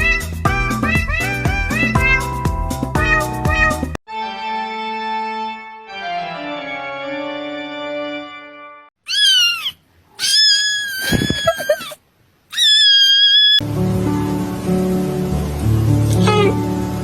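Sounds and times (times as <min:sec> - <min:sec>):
cat meowing: 0:09.1 - 0:13.6.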